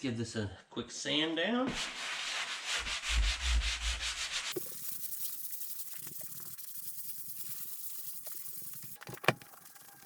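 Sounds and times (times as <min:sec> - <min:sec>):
hand sanding rasping strokes: 0:01.7 - 0:08.8.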